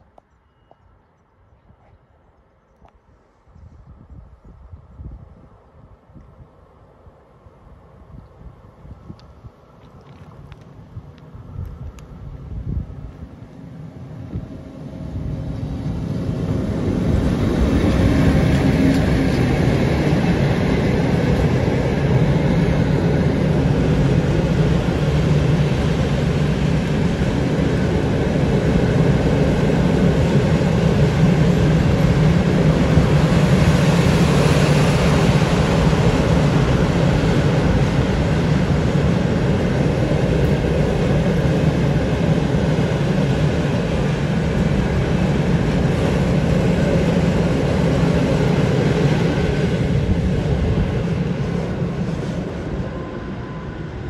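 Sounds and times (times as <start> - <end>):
electric locomotive passing: 10.3 - 54.0
steel wheels rumbling on rails: 11.4 - 54.0.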